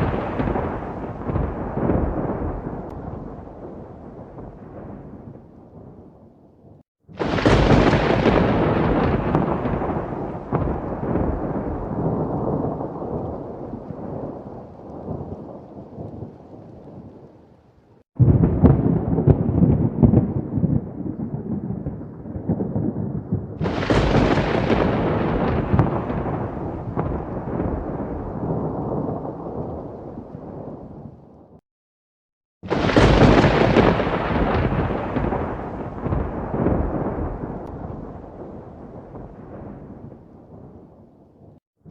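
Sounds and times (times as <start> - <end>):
thunder claps and rumble: 0.0 - 17.4, 18.2 - 31.6, 32.6 - 41.9.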